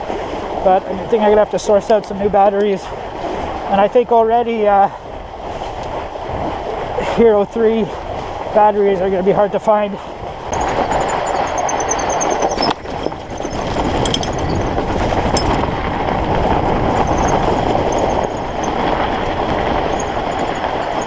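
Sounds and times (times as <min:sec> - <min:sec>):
bike tyres rumbling on frozen ground: 0:00.0 - 0:21.0
faint high squeaks: 0:10.6 - 0:15.6, 0:17.0 - 0:18.8, 0:19.8 - 0:21.0.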